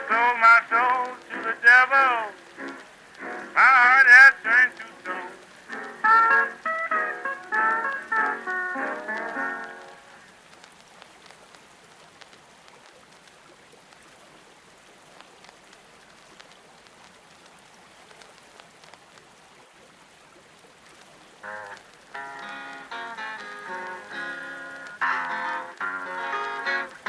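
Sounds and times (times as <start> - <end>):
pitched music notes: 0.0 - 10.2, 21.4 - 27.0
faint clicks: 0.0 - 19.4, 20.8 - 27.0
patter of falling water: 0.0 - 27.0.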